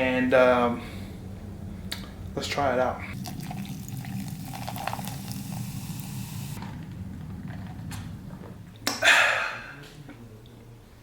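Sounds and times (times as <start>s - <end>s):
low steady hum: 0.0s - 11.0s
soda can fizzing: 3.2s - 6.6s.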